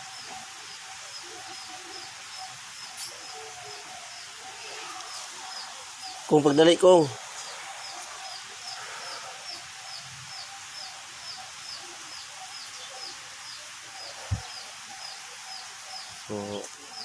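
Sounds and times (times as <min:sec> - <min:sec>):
small bird chirping: 0:07.4 - 0:17.0.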